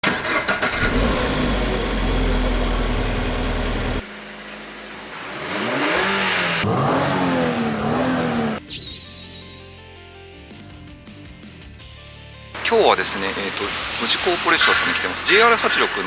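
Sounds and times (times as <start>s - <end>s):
car engine running and revving: 0.5s - 8.6s.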